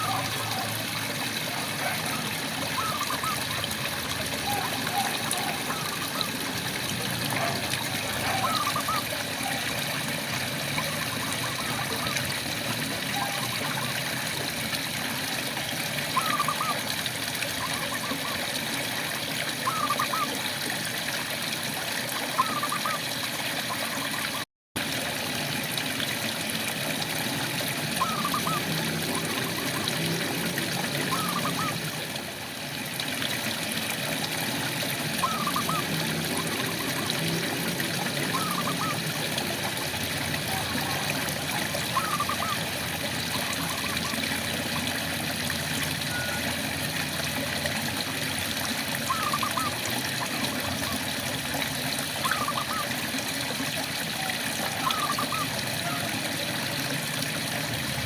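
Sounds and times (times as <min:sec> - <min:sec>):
frogs chirping: 0:28.0 - 0:29.6, 0:35.2 - 0:36.9, 0:38.3 - 0:38.9, 0:42.0 - 0:42.6.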